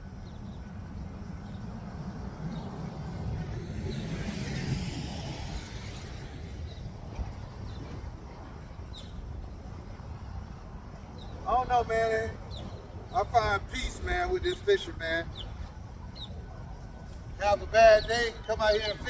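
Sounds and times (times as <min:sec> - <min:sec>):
steady low rumble: 0:00.0 - 0:19.0
vehicle passing by: 0:01.8 - 0:06.8.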